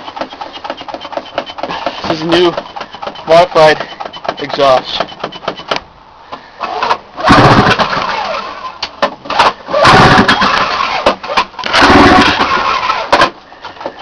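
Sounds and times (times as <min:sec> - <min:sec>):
snowmobile engine starting: 0:06.5 - 0:14.0.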